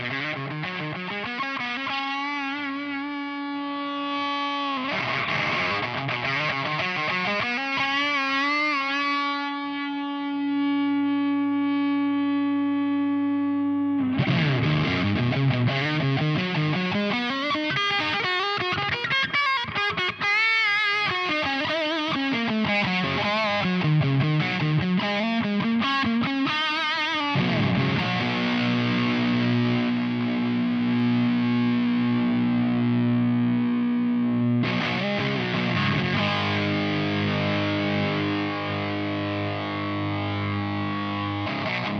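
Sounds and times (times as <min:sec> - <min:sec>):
distorted electric guitar: 0:00.0 - 0:41.9.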